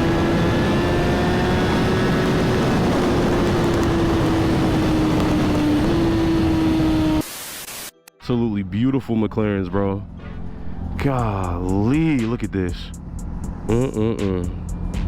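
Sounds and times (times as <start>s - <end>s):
motorcycle engine cruising: 0.0s - 7.2s, 12.7s - 15.0s.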